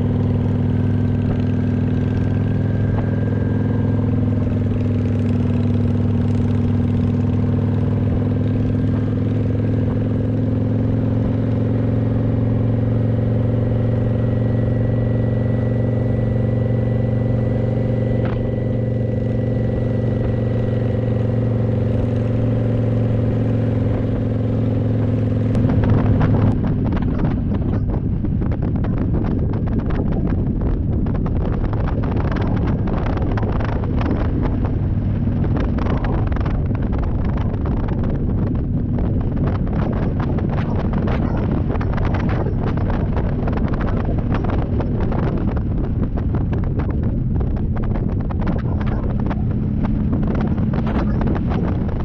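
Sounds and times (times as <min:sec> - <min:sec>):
motorcycle engine running: 0:00.0 - 0:52.0
wind buffeting microphone: 0:00.0 - 0:52.0.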